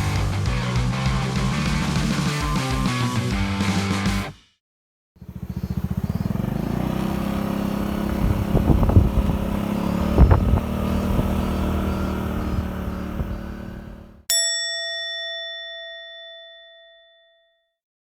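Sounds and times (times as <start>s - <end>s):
scooter engine running: 5.2s - 14.3s.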